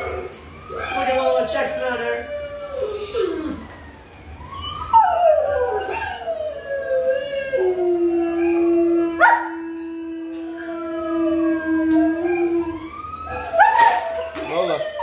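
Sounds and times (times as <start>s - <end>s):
dogs howling: 0.0s - 15.0s.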